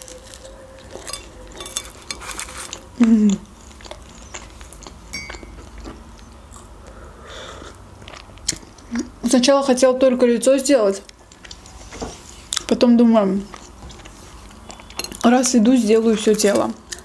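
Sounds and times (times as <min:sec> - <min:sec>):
chewing with wet mouth clicks: 0:02.7 - 0:07.0, 0:07.7 - 0:09.1, 0:11.1 - 0:11.7, 0:13.5 - 0:15.3.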